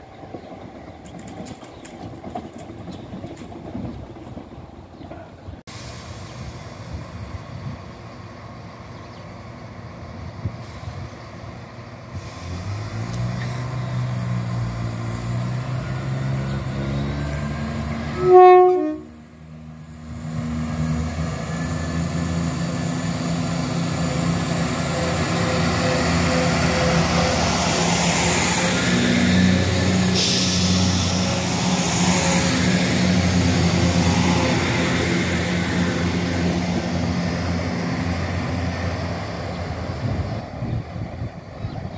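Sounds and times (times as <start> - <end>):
train pulling into station: 0.0 - 41.9
train horn blast: 18.0 - 19.2.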